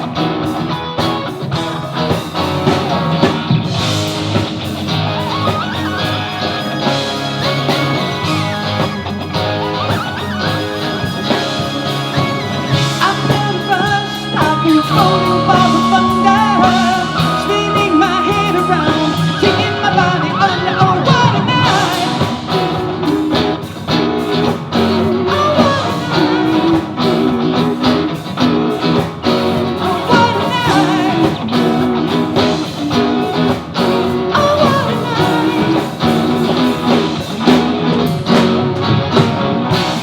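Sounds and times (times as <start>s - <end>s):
drum beat: 0.0s - 40.0s
electric guitar: 0.0s - 40.0s
rock band playing: 0.0s - 40.0s
person singing: 11.1s - 23.7s, 24.7s - 38.4s.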